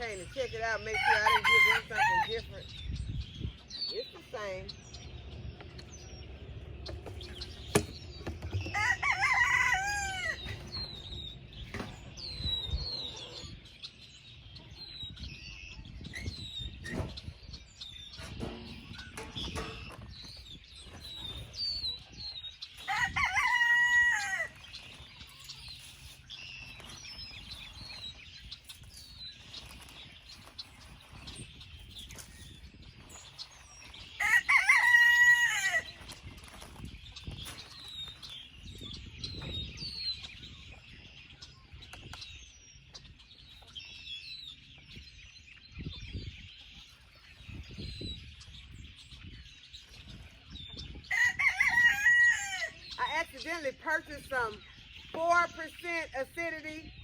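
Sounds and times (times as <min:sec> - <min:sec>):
rooster crowing: 0:01.0 - 0:02.3, 0:08.7 - 0:10.6, 0:22.9 - 0:24.6, 0:34.2 - 0:36.0, 0:51.1 - 0:52.8.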